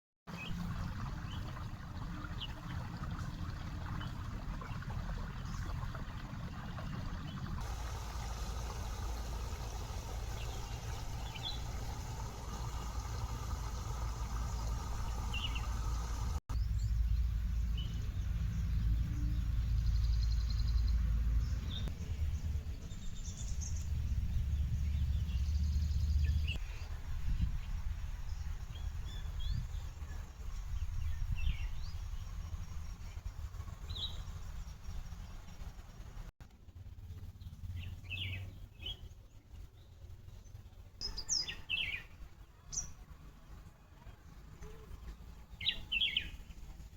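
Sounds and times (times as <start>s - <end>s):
steady low rumble: 0.6s - 37.7s.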